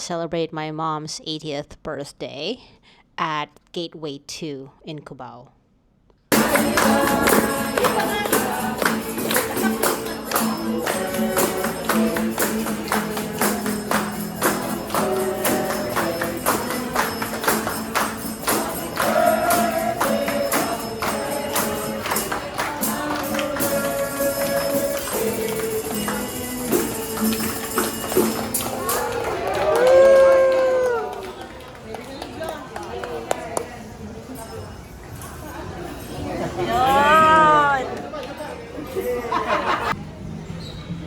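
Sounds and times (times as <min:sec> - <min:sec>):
background music with steady beat: 0:06.3 - 0:29.1
tambourine-like percussion: 0:06.3 - 0:29.5.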